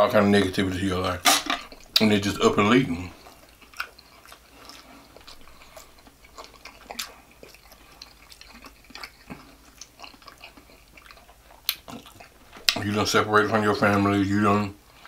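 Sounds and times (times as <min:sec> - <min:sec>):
wet chewing with mouth smacks: 0:01.6 - 0:13.0.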